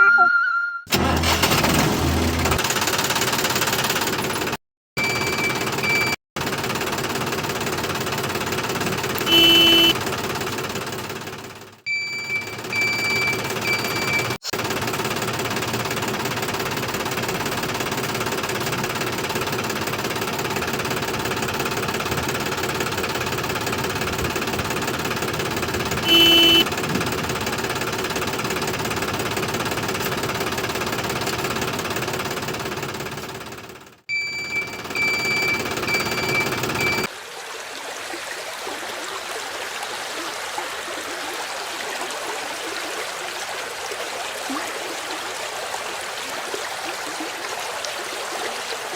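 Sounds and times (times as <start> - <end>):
short high tone: 0.0 - 0.9
knocking tractor engine: 0.9 - 37.1
flowing water: 34.7 - 48.9.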